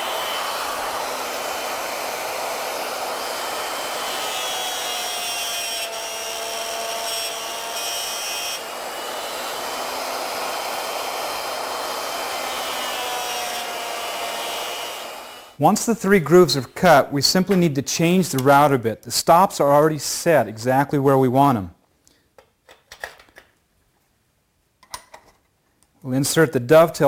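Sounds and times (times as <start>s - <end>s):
router motor milling wood: 0.0s - 15.6s.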